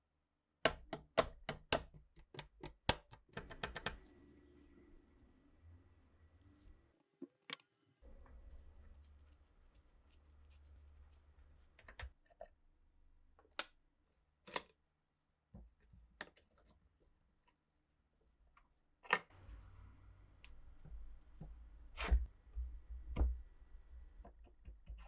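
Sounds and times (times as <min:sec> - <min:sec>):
faint low hum: 0:03.4 - 0:07.0.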